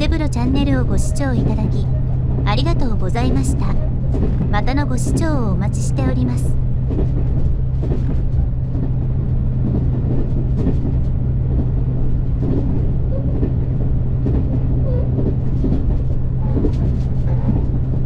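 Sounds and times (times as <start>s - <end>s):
train running drone: 0.0s - 18.0s
train knocks and rattles: 6.2s - 18.0s.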